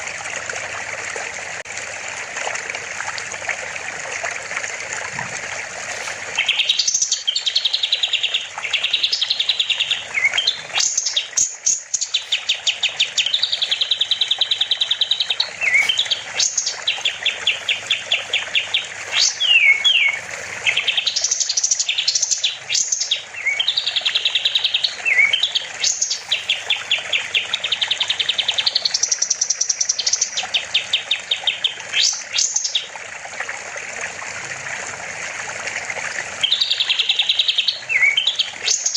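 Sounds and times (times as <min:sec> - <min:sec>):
running water: 0:00.0 - 0:38.9
songbird trilling and whistling: 0:06.4 - 0:30.4, 0:36.4 - 0:38.9.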